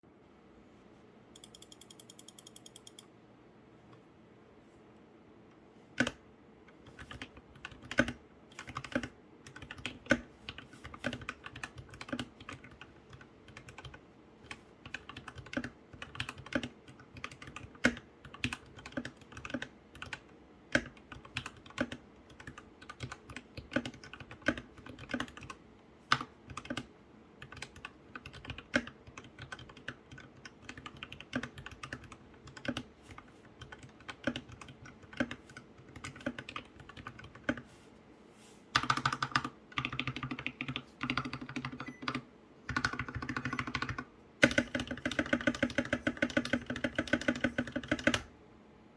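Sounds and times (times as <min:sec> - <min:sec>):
mechanical keyboard typing: 0:01.4 - 0:03.1, 0:06.0 - 0:06.2, 0:06.8 - 0:37.6, 0:38.8 - 0:48.3.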